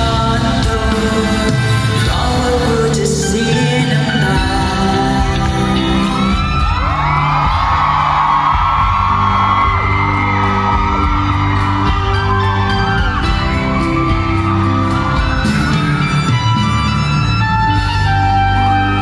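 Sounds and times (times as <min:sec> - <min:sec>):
live pop band music: 0:00.0 - 0:19.0
crowd whooping and shouting: 0:04.4 - 0:19.0.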